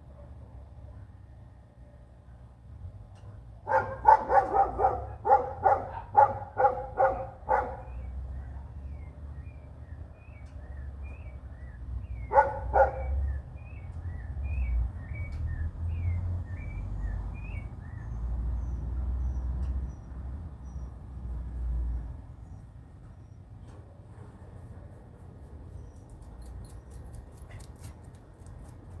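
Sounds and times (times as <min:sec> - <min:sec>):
dog barking: 0:03.6 - 0:08.1, 0:12.2 - 0:13.3.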